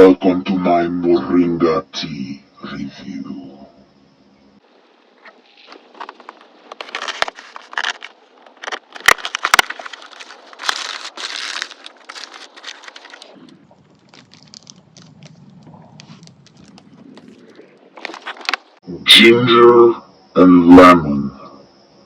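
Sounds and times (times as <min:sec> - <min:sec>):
faint low hum: 0:00.0 - 0:22.0
packaging crinkling: 0:05.7 - 0:18.8.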